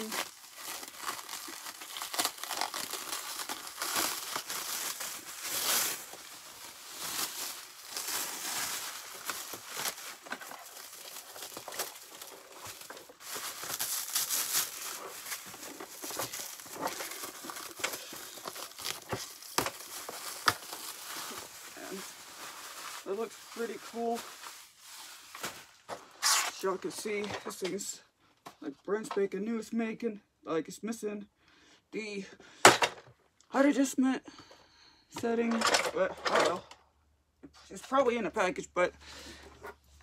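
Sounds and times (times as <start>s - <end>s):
packaging tearing: 0.0s - 25.6s, 26.2s - 26.6s
packaging crinkling and rustling: 0.0s - 27.6s.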